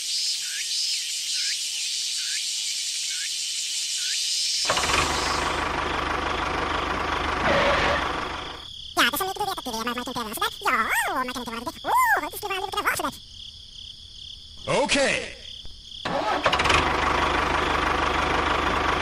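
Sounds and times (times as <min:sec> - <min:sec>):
small engine running with knock: 0:04.7 - 0:08.6, 0:16.1 - 0:19.0.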